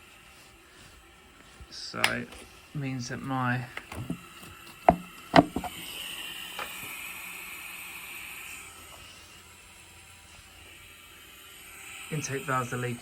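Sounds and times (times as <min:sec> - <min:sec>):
compressed air hissing: 0:03.8 - 0:13.0
sharp knocks: 0:04.9 - 0:05.7.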